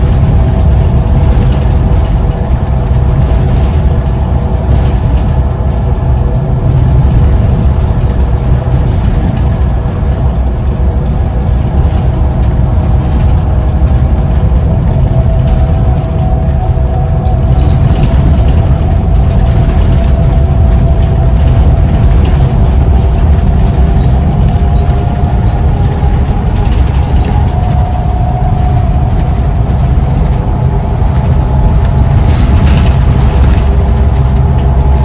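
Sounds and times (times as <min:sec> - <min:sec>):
bus engine rumble and whine: 0:00.0 - 0:35.0.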